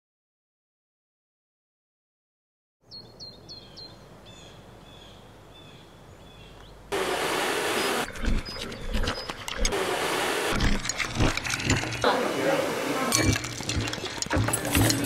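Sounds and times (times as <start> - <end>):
small birds chirping: 2.8 - 6.9, 7.6 - 9.7
loud outdoor hiss: 3.5 - 8.1, 9.6 - 15.0.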